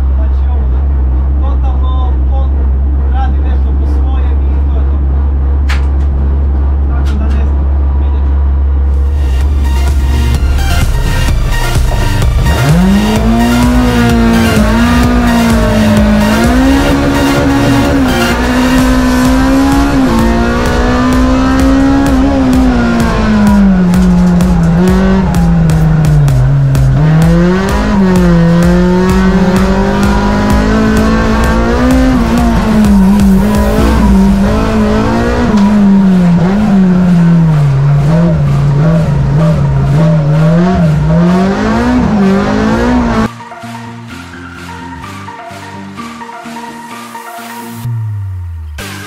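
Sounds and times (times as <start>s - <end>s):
race car engine at high revs: 7.6s - 43.3s.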